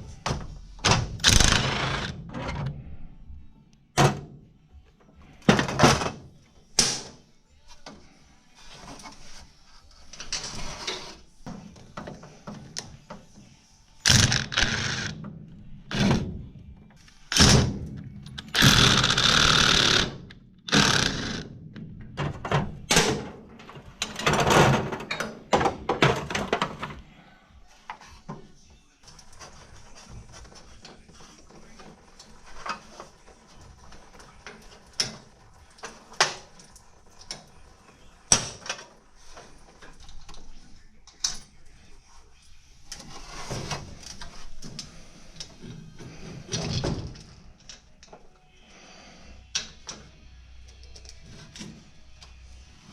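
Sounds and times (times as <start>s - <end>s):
tools clattering on metal: 22.0s - 27.0s.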